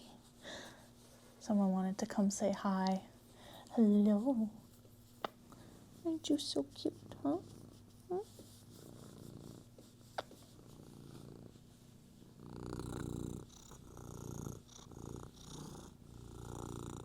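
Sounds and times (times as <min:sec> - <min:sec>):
cat purring: 0:05.6 - 0:17.0.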